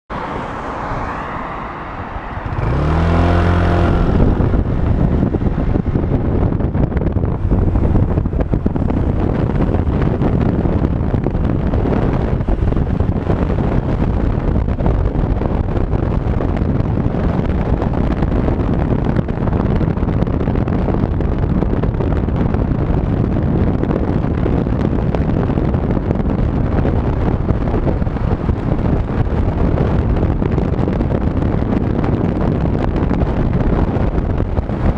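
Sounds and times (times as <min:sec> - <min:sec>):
wind rushing: 0:00.1 - 0:34.9
scooter engine: 0:02.2 - 0:16.3.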